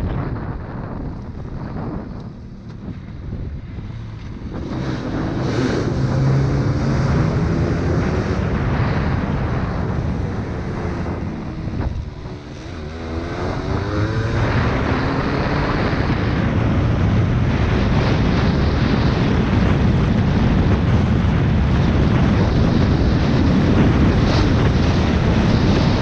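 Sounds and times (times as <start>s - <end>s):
wind on microphone: 0.0s - 26.0s
dirt bike engine revving: 4.5s - 9.1s, 9.7s - 16.4s.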